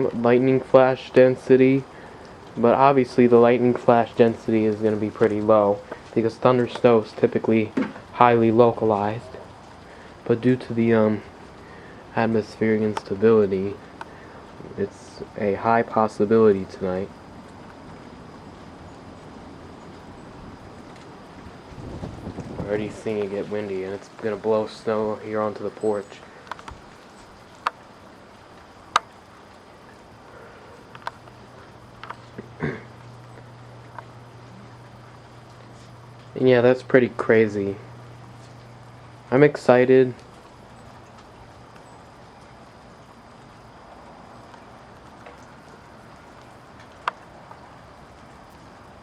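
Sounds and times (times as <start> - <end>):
low steady hum: 0.0 - 49.0
wind and falling wet snow: 0.0 - 49.0
sharp ticks: 26.4 - 29.5, 30.3 - 39.4, 46.3 - 47.6.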